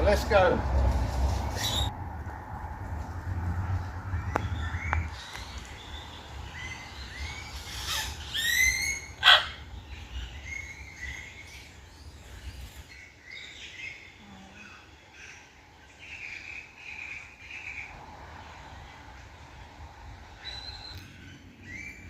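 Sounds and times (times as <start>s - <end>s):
birds chirping: 1.5s - 1.9s, 3.6s - 22.0s.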